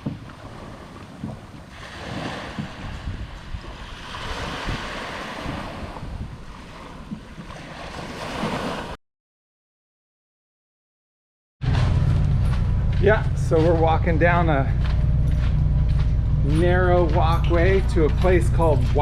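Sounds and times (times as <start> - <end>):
wind buffeting microphone: 0.0 - 8.2, 11.9 - 19.0
ocean surf washing on shore: 0.0 - 9.0.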